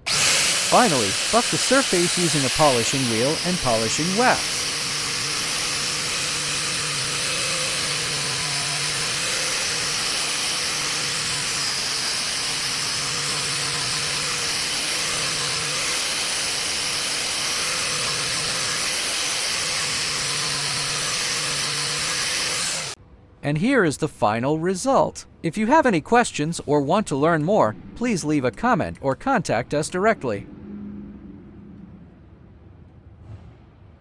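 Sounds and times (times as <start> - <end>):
polishing wheel whirring: 0.0 - 23.0.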